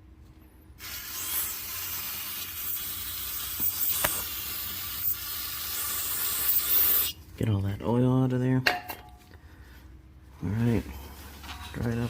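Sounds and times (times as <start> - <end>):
aerosol can spraying: 0.8 - 7.2.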